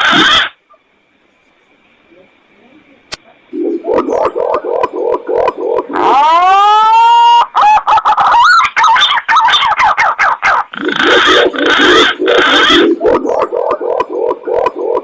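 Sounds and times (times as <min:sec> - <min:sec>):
low pulsing pigeon coos: 0:03.5 - 0:06.7, 0:10.8 - 0:15.0
gliding bird warbles: 0:03.5 - 0:07.8, 0:08.4 - 0:15.0
harsh bird calls: 0:07.0 - 0:15.0.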